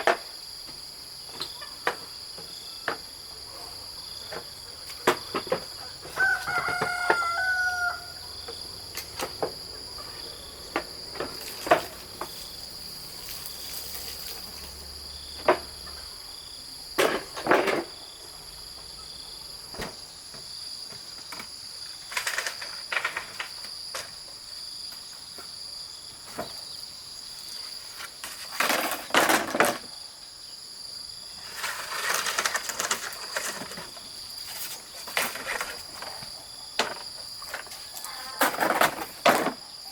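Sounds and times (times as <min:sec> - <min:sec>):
insect drone: 0:00.0 - 0:39.9
rooster crowing: 0:05.8 - 0:08.5.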